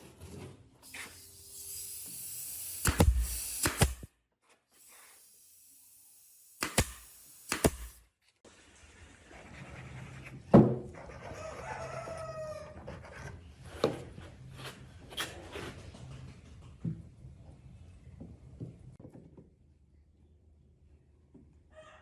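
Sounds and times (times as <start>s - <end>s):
rooster crowing: 11.2s - 12.9s, 21.7s - 22.0s.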